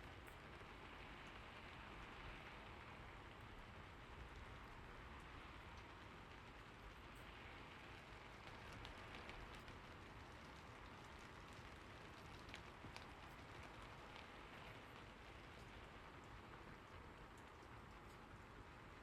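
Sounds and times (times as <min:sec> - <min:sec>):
faint steady rain: 0:00.0 - 0:19.0
light drip-like ticks: 0:00.0 - 0:19.0.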